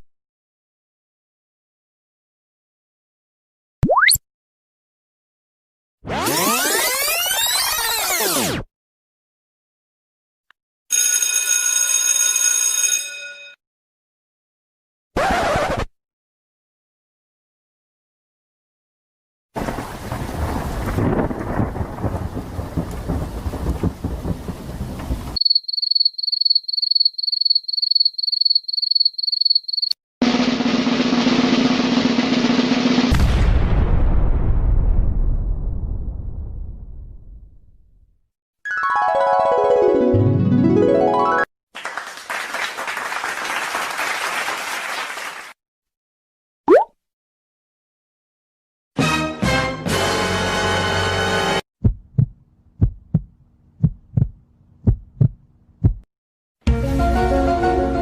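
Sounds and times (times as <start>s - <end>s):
rumbling crackling noise: 19.6s - 25.4s
crowd clapping: 41.7s - 45.6s.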